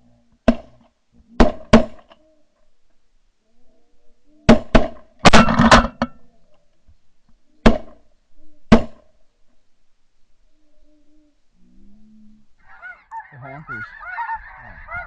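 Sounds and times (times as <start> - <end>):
geese calling: 12.6 - 15.0.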